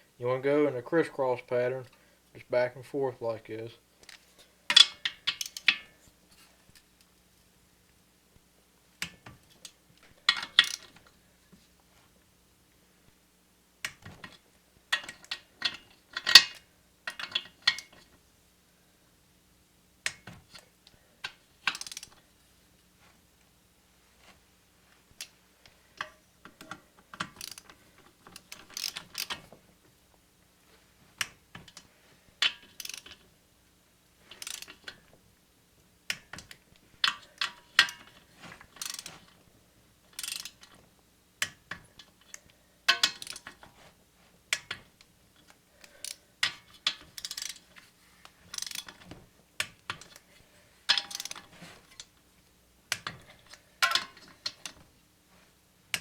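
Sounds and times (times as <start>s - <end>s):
ratchet wrench clicking: 4.7s - 5.8s, 21.7s - 22.2s, 27.4s - 27.7s, 28.4s - 29.4s, 32.7s - 33.2s, 34.3s - 34.9s, 38.8s - 39.1s, 40.2s - 40.6s, 42.9s - 43.5s, 46.8s - 47.6s, 48.5s - 49.0s, 51.0s - 51.4s.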